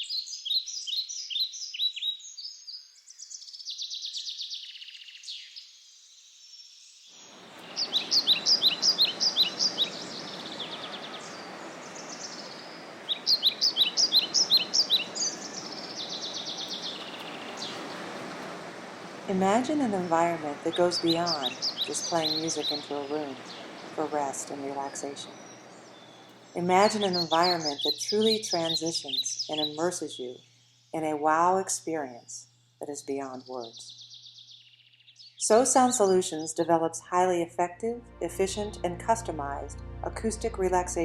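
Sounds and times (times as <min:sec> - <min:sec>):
songbirds chirping: 0:00.0 - 0:41.0
steady rushing noise: 0:07.3 - 0:24.4.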